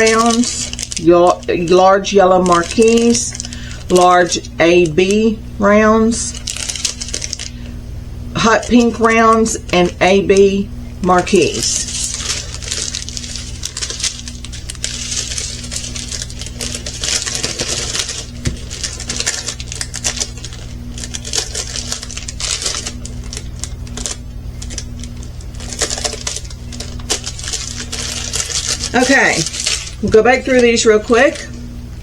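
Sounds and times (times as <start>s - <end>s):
plastic bag crinkling: 0.0s - 7.8s, 8.4s - 31.6s.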